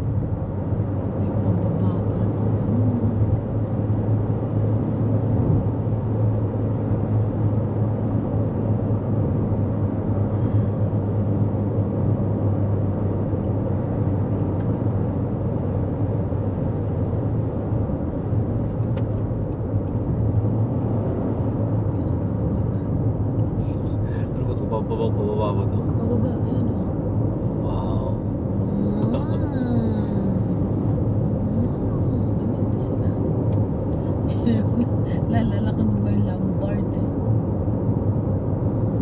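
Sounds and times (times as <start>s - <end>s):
car cabin engine hum: 0.0s - 39.0s.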